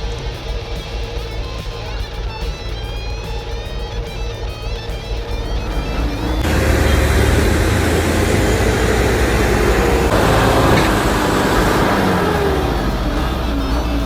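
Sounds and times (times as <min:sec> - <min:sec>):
diesel truck engine labouring: 0:04.2 - 0:14.0.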